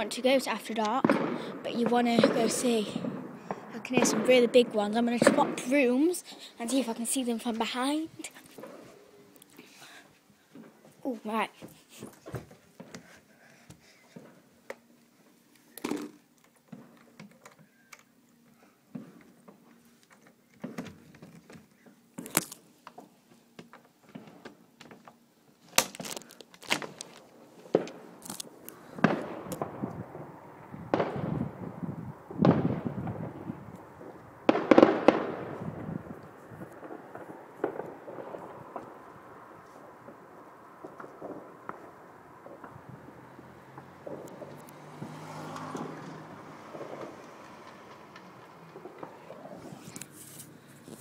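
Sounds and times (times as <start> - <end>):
fireworks cracks and pops: 0.0 - 8.8, 18.9 - 51.0
fireworks bangs with rumble: 1.0 - 6.1, 29.0 - 39.1, 39.8 - 43.1, 46.7 - 49.8.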